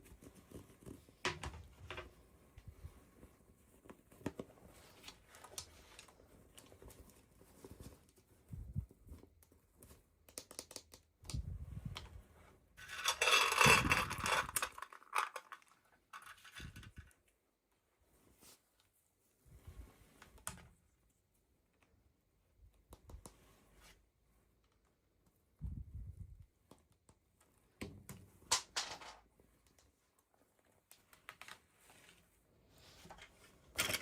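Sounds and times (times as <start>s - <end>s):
toy packaging tapping and crinkling: 12.8s - 17.2s, 27.8s - 29.2s.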